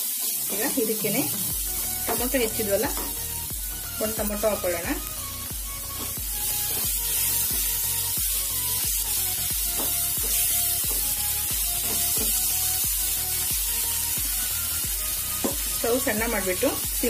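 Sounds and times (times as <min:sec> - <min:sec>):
vegetables sizzling in oil: 0:00.0 - 0:17.0
background music with a beat: 0:01.3 - 0:17.0
spatula stirring in a pan: 0:05.9 - 0:15.8.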